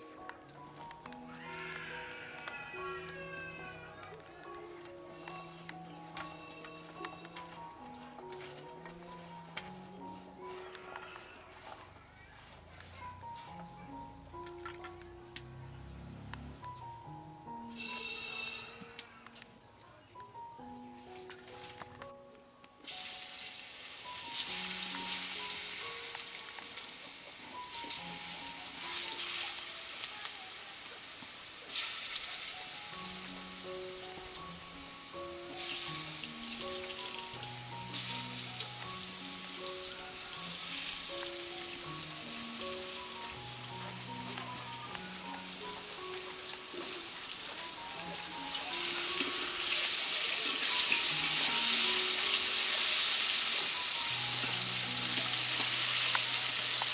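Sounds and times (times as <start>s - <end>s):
background melody: 0.0s - 56.9s
food sizzling in hot oil: 22.8s - 56.9s.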